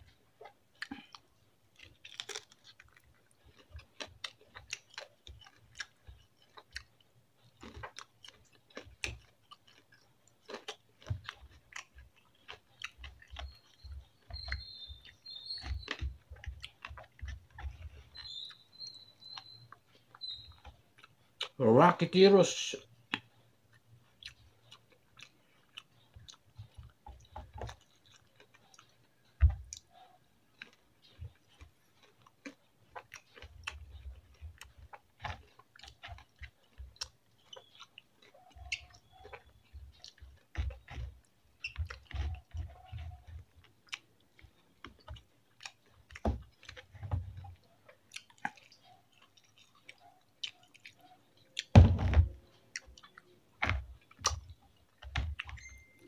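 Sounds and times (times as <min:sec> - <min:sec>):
person chewing food: 0:00.0 - 0:21.6, 0:22.8 - 0:56.0
wet mouth noises: 0:00.0 - 0:21.6.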